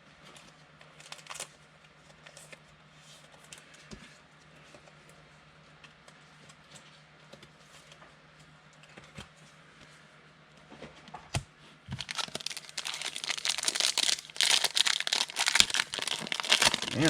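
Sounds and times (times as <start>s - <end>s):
foil wrapper tearing and crinkling: 12.0s - 17.0s.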